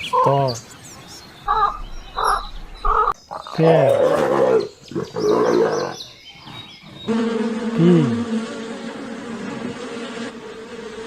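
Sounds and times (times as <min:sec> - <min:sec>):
bear growling: 0:01.5 - 0:07.1
bee buzzing: 0:05.1 - 0:11.0.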